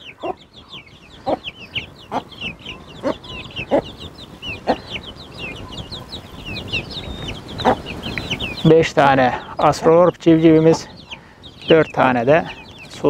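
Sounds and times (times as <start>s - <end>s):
chicks peeping: 0.0s - 13.0s
hen clucking: 0.0s - 13.0s.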